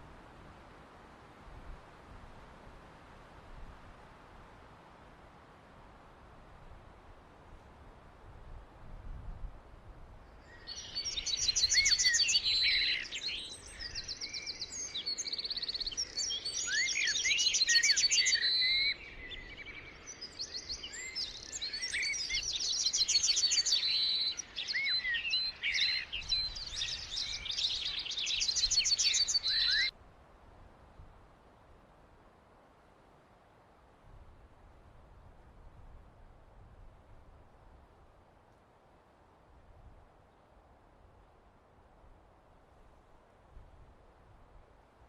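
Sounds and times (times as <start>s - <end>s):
songbirds chirping and trilling: 10.3s - 29.9s.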